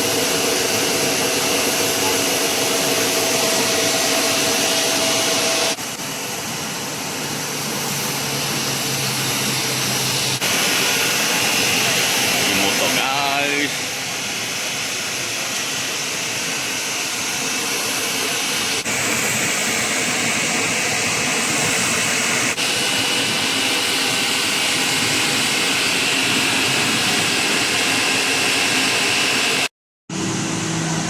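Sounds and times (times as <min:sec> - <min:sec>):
car wash machinery hissing: 0:00.0 - 0:31.0.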